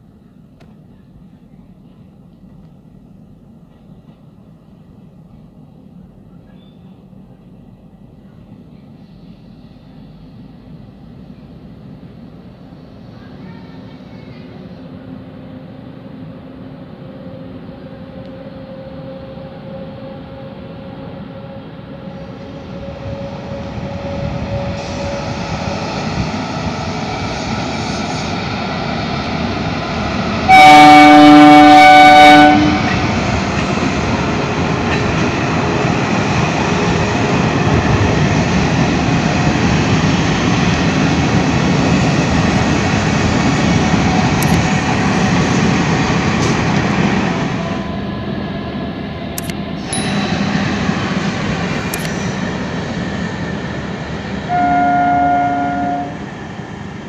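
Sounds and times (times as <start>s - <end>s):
train running noise: 0.0s - 57.0s
train horn blast: 30.5s - 33.1s, 54.5s - 56.3s.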